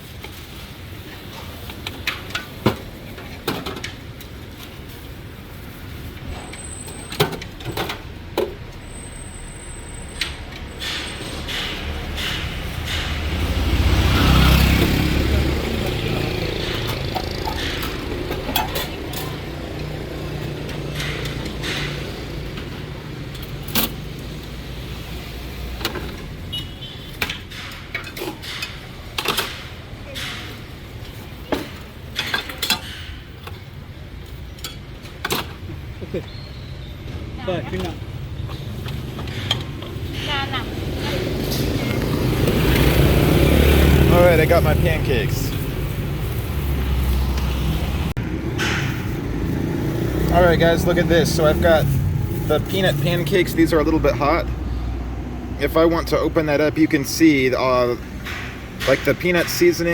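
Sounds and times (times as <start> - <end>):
motor vehicle passing: 10.8 - 26.5, 37.2 - 59.9.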